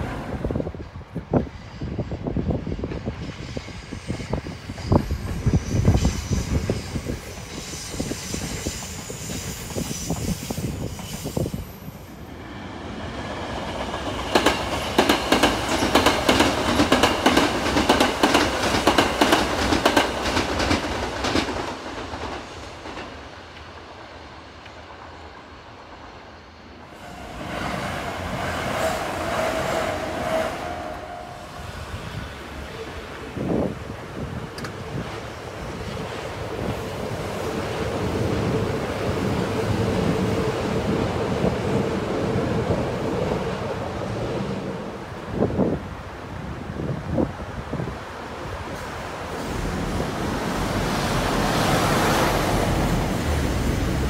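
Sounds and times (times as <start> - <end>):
train wheels clattering over rail joints: 13.6 - 24.2.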